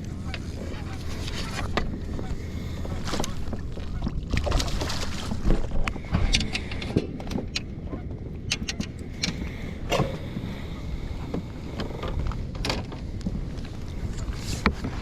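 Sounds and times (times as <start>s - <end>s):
wind rumble on microphone: 0.0s - 15.0s
knocks and clicks of gear: 8.4s - 10.2s, 11.3s - 13.4s.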